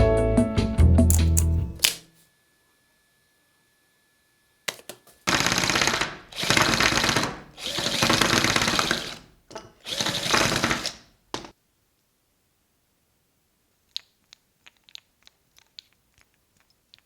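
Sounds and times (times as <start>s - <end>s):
miniature jackhammer hammering: 4.7s - 9.2s.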